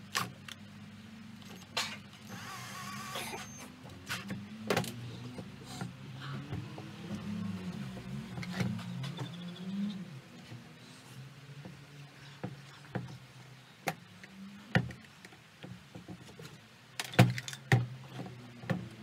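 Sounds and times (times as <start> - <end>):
tools clicking and knocking on parts: 13.8 - 19.0.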